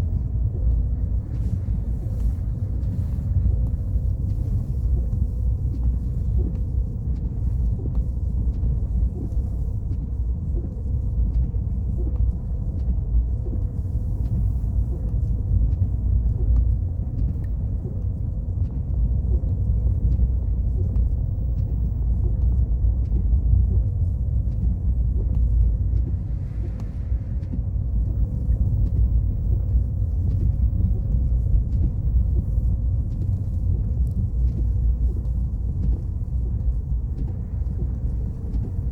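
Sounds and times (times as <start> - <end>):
faint steady hum: 0.0 - 38.9
car tyre and engine rumble: 17.8 - 38.9.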